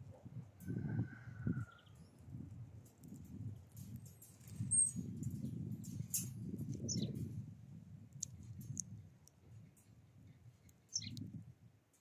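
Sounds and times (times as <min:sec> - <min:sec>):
bird chirps: 0:10.9 - 0:11.2.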